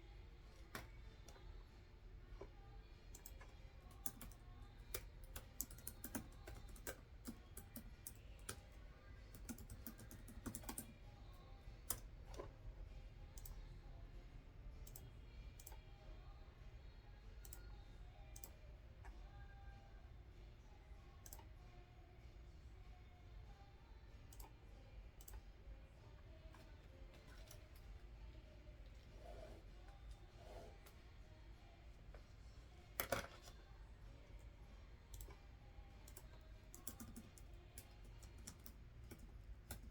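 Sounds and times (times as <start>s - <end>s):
computer keyboard typing: 3.1s - 11.1s, 26.6s - 27.9s, 35.1s - 39.9s.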